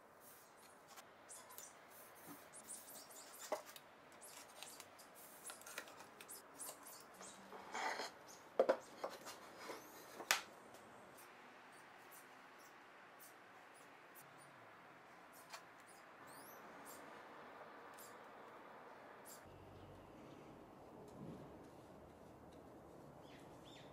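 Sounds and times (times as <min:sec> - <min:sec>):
panels scraping and rustling: 0:07.4 - 0:10.3.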